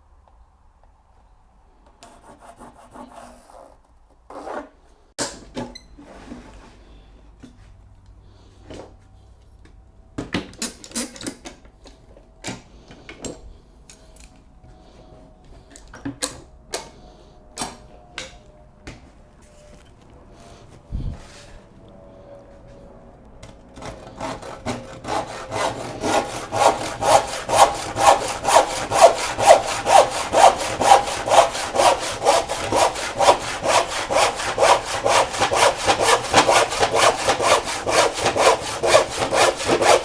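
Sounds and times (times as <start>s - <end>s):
scraping rubs on wood: 23.8s - 40.0s.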